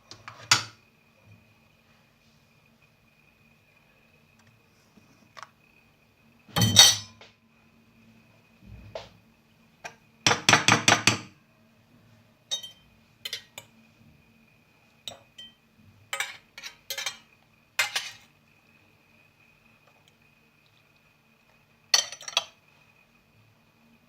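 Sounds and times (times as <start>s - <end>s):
dishes and cutlery clinking: 6.6s - 7.2s, 12.5s - 13.7s, 15.1s - 18.3s, 22.0s - 22.6s.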